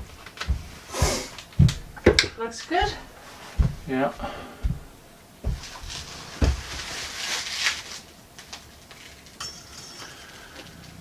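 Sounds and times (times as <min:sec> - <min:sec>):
handling rustling: 0:00.0 - 0:09.3
dull knock: 0:01.6 - 0:05.8.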